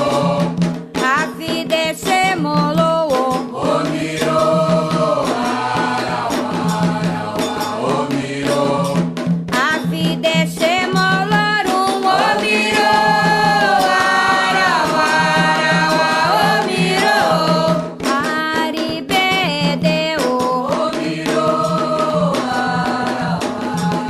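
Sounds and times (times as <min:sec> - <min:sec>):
voices chanting together: 0:00.0 - 0:00.7, 0:03.4 - 0:09.1, 0:11.8 - 0:18.0, 0:20.6 - 0:24.0
hand drums beating: 0:00.0 - 0:24.0.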